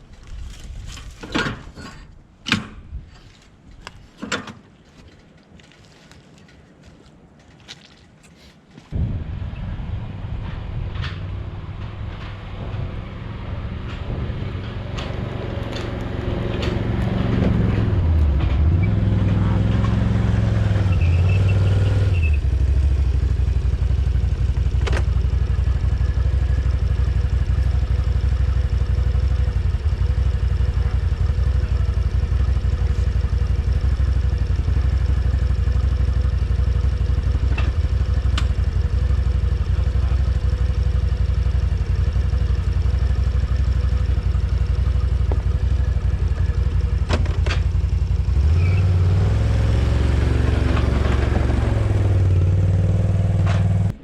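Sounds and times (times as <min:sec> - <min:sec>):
atv engine revving: 0:12.6 - 0:54.0.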